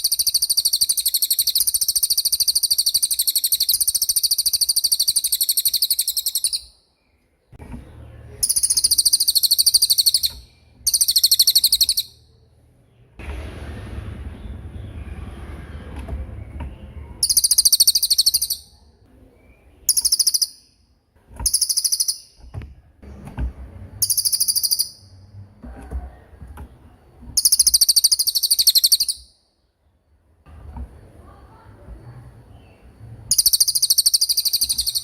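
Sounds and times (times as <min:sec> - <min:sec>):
songbird trilling: 0:00.0 - 0:06.8, 0:08.4 - 0:12.3, 0:17.2 - 0:18.8, 0:19.5 - 0:20.8, 0:21.5 - 0:22.5, 0:24.0 - 0:25.1, 0:27.4 - 0:29.4, 0:33.3 - 0:35.0
low rumbling background noise: 0:06.8 - 0:09.5, 0:11.6 - 0:17.8, 0:22.5 - 0:27.6, 0:29.4 - 0:33.6.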